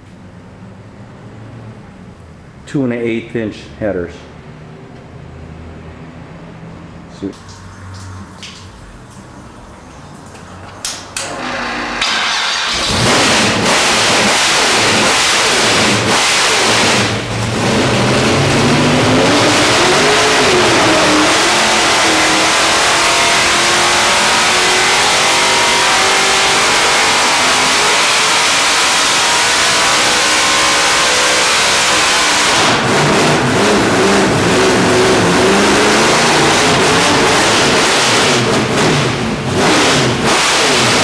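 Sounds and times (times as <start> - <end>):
race car engine revving: 11.2 - 41.0.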